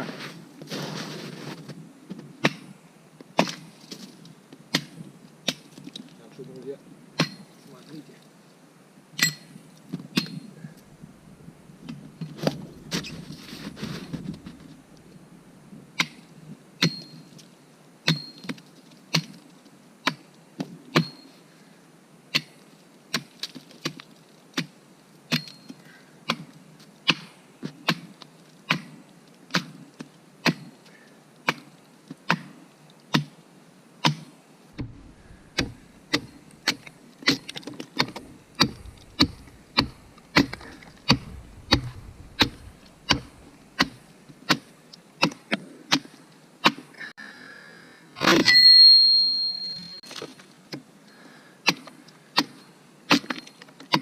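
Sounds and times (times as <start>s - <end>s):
axe chopping wood: 4.7s - 5.7s, 7.2s - 7.4s, 34.0s - 46.8s.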